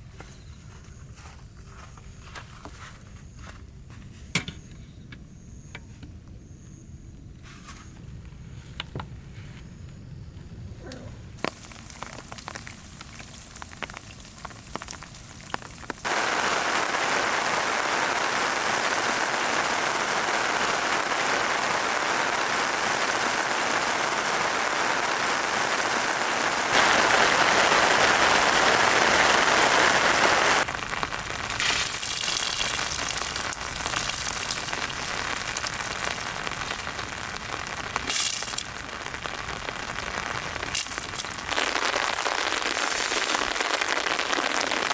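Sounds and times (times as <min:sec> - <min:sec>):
heavy rain pouring: 0:11.4 - 0:44.9.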